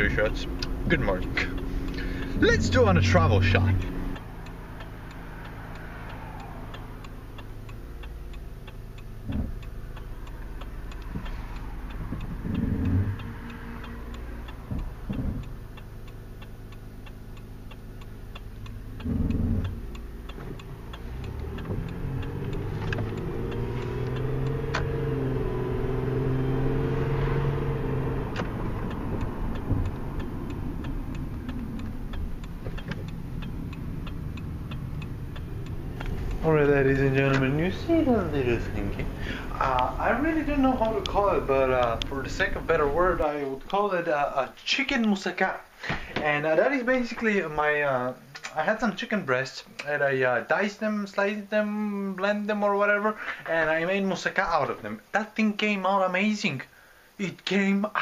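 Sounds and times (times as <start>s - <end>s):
car engine running: 0.0s - 45.0s
faint steady ticking: 0.0s - 58.0s
thumps: 14.7s - 15.5s.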